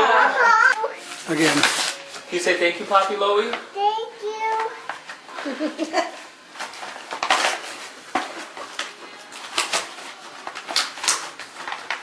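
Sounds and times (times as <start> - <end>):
packaging clicks and crinkles: 1.1 - 2.3, 6.5 - 12.0.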